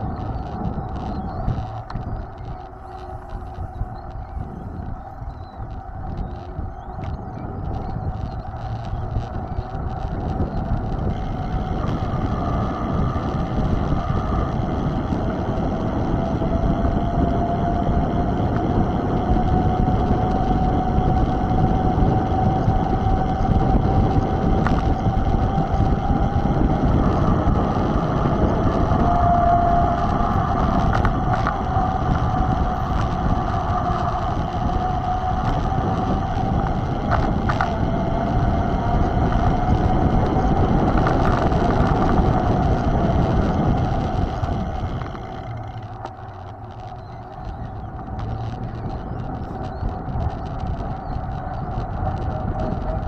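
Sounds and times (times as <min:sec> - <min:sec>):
faint clicks: 0:00.0 - 0:15.5, 0:28.8 - 0:53.0
steady wavering whine: 0:00.0 - 0:53.0
wind rushing over microphone: 0:00.0 - 0:53.0.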